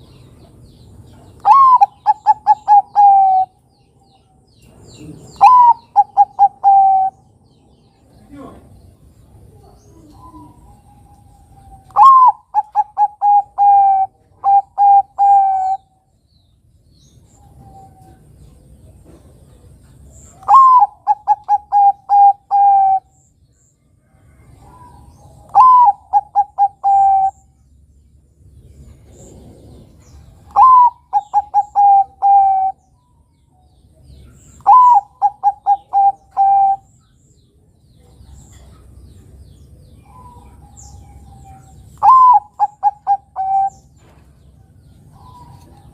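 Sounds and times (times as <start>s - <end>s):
dove cooing: 1.4s - 3.6s, 4.7s - 7.3s, 9.5s - 15.9s, 20.3s - 23.2s, 24.3s - 27.5s, 29.1s - 32.9s, 34.4s - 36.9s, 40.0s - 45.9s.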